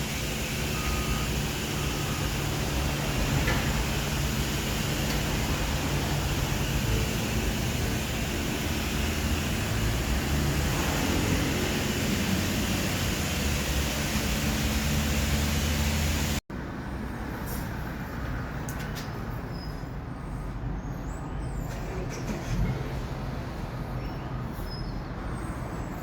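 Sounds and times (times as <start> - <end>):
low pump hum: 0.0 - 16.4
pressure washer spraying water: 0.0 - 16.4.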